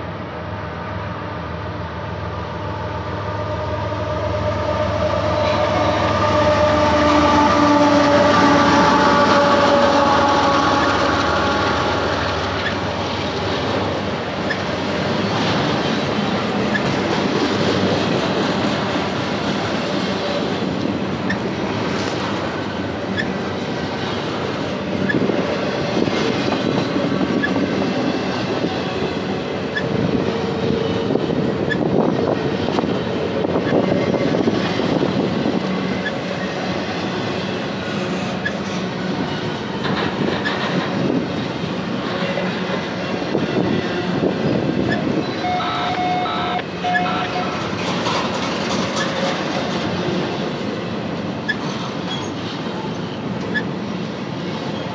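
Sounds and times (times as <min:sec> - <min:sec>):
steel wheels clattering on rails: 0:10.8 - 0:45.4, 0:46.7 - 0:54.9
wheel squeal: 0:14.4 - 0:15.9, 0:23.1 - 0:23.4, 0:25.0 - 0:25.3, 0:31.6 - 0:31.9, 0:35.8 - 0:36.5, 0:37.8 - 0:40.9, 0:44.8 - 0:49.5, 0:51.4 - 0:54.9.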